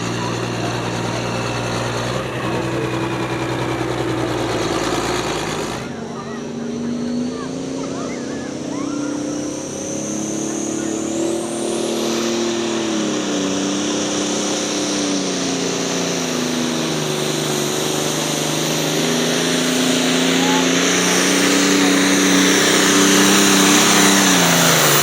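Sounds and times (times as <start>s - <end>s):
engine running hard: 0.0s - 25.0s
high whistle climbing: 19.5s - 25.0s.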